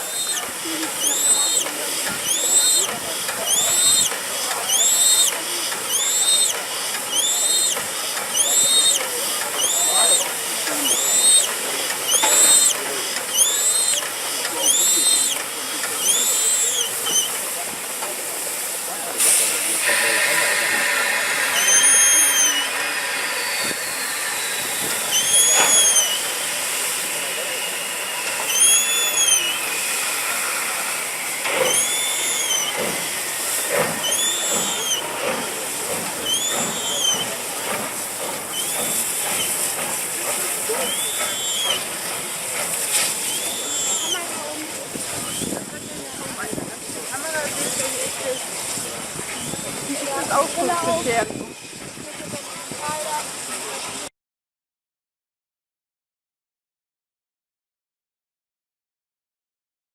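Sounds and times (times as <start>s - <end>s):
steam locomotive hissing: 0.0s - 54.1s
rising and falling squeal: 20.3s - 26.6s, 27.2s - 30.8s, 31.4s - 33.2s, 34.0s - 35.1s.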